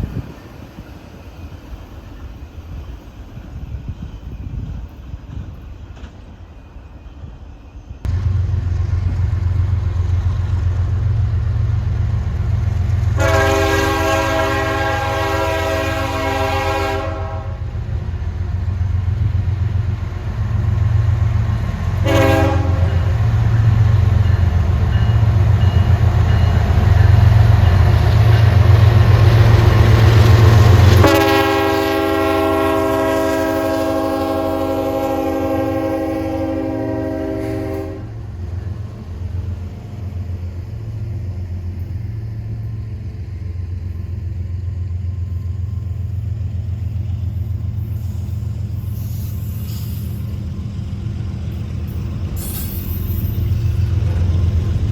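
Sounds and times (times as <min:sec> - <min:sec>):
diesel locomotive engine running: 0:00.0 - 0:54.9
locomotive air horn: 0:13.2 - 0:17.7, 0:22.0 - 0:23.1, 0:30.8 - 0:38.3.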